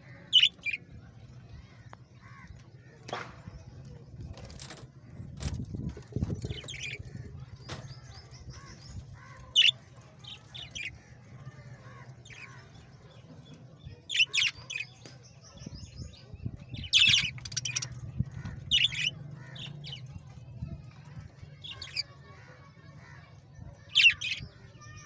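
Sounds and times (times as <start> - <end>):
pet birds chirping: 0.0 - 0.9, 3.8 - 11.0, 11.7 - 20.1, 23.8 - 25.0.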